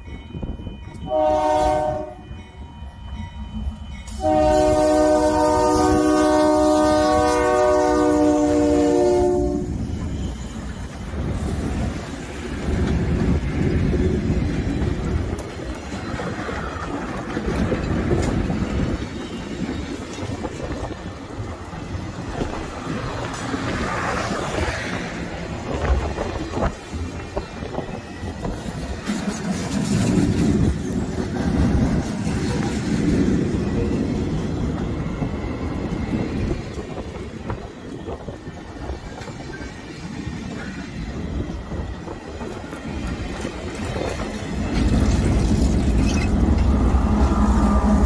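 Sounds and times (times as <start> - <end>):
locomotive air horn: 1.1 - 2.3, 4.1 - 9.8
train wheels clattering over rails: 9.8 - 48.0.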